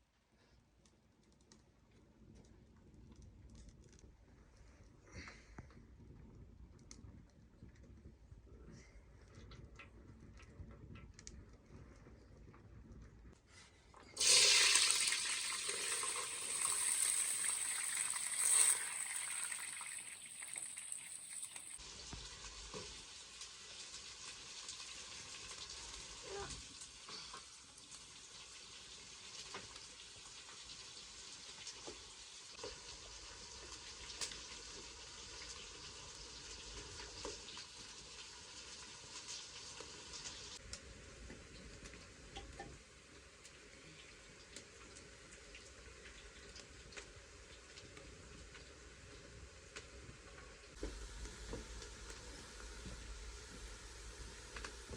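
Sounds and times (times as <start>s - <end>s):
oil ticks and pops: 0.8s - 4.2s, 5.6s - 8.3s, 9.2s - 13.2s, 33.6s - 35.6s, 40.6s - 42.8s, 44.4s - 54.9s
food sizzling in hot oil: 14.2s - 40.6s, 44.8s - 54.9s.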